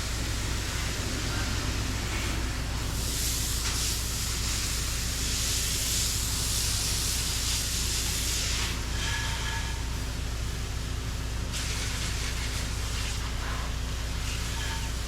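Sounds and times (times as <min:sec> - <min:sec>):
pressure washer spray hiss: 0:00.0 - 0:09.4, 0:11.5 - 0:13.4
pressure washer engine drone: 0:00.0 - 0:15.0.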